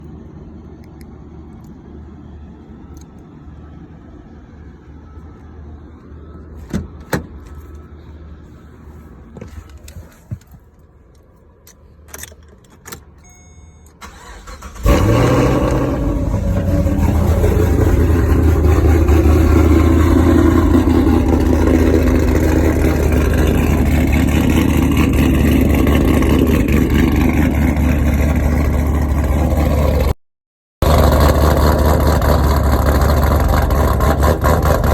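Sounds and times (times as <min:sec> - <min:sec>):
engine starter clicks: 0:13.8 - 0:15.8
car engine idling loudly: 0:15.0 - 0:30.1, 0:30.8 - 0:34.9.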